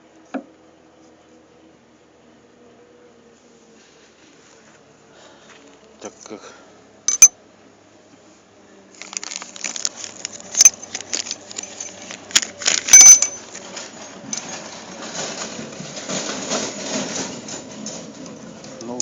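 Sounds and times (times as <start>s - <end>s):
sharp ringing metal clinks: 7.1s - 7.3s, 12.9s - 13.5s.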